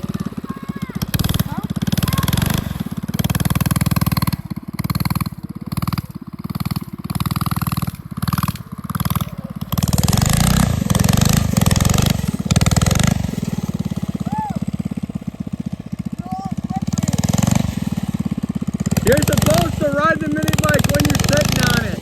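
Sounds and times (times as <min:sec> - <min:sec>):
mini bike engine revving: 0:00.0 - 0:22.0.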